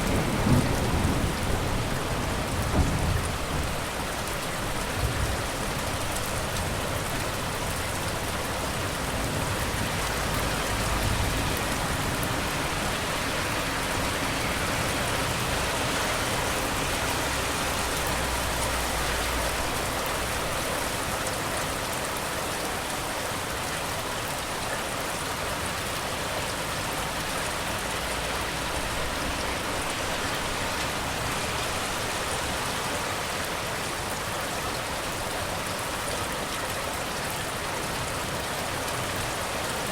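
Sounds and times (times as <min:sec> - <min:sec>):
rain hissing: 0:00.0 - 0:21.0.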